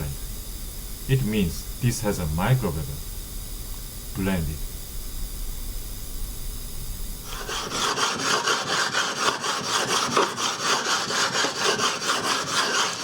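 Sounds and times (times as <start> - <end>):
whetstone scraping on stone: 7.3 - 13.0.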